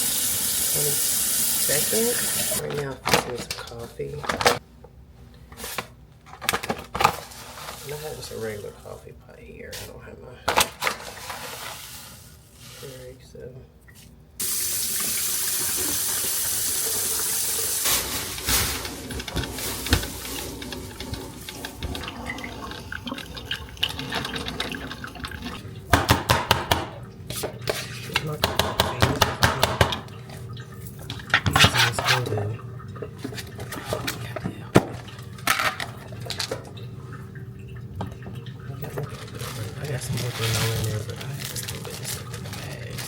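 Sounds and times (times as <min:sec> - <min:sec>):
tap running: 0:14.4 - 0:43.0.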